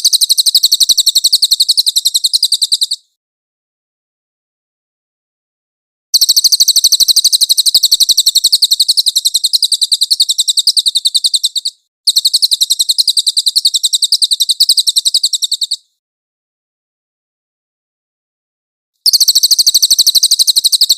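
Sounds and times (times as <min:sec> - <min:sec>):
songbird trilling: 0:00.0 - 0:03.0, 0:06.2 - 0:15.9, 0:19.0 - 0:20.9.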